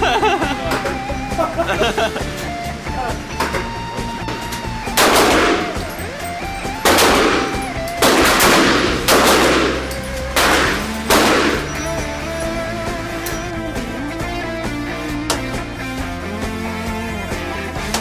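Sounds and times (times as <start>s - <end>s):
background guitar music: 0.0s - 18.0s
gunshots with echo: 4.8s - 12.2s.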